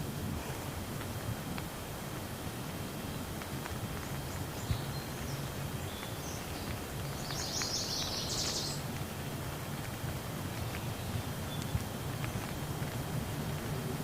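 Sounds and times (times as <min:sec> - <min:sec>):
rain falling: 0:00.0 - 0:14.0
bird chirping: 0:04.1 - 0:08.9, 0:10.6 - 0:12.5.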